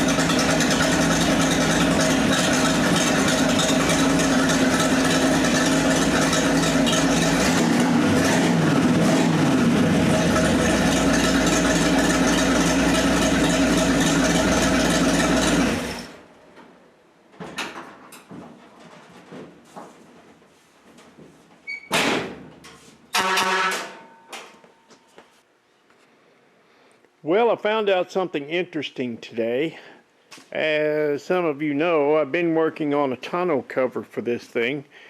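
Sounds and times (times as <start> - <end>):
car engine running: 0.0 - 16.1.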